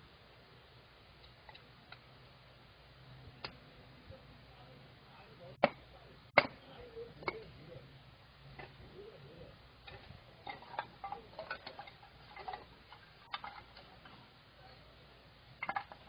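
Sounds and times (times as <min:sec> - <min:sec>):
campfire wood crackling: 0:00.0 - 0:16.0.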